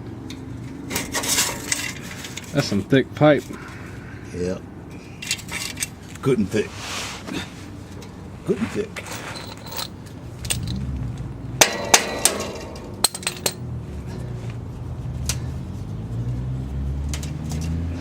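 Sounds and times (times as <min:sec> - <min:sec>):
metal tools knocking on metal: 0:09.1 - 0:10.9, 0:11.6 - 0:13.6
low hum: 0:09.4 - 0:16.9.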